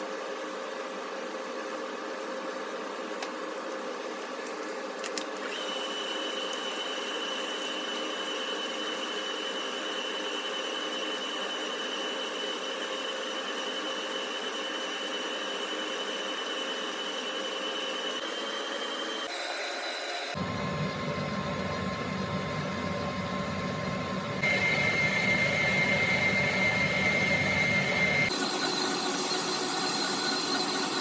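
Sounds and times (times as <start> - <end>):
appliance motor whirring hum: 1.7 - 31.0
high whine: 20.4 - 28.6.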